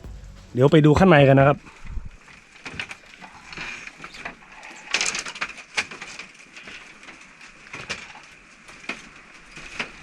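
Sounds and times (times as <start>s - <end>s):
footsteps crunching on dry ground: 0.0s - 1.6s.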